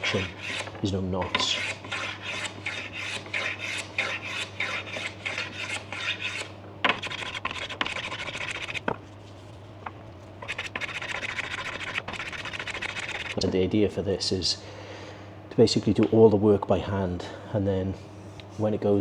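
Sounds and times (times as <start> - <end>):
hand plane shaving wood: 0.0 - 8.9, 10.4 - 13.4.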